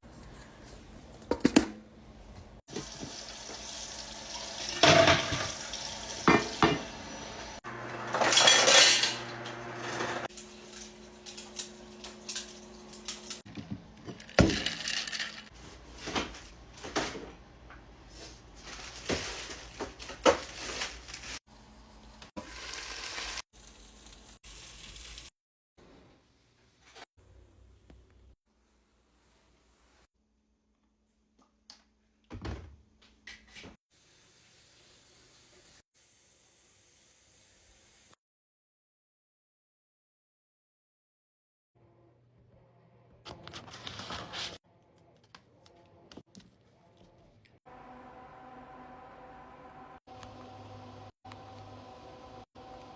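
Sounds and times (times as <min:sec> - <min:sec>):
dishes and cutlery clinking: 0:04.8 - 0:05.5, 0:08.1 - 0:09.2.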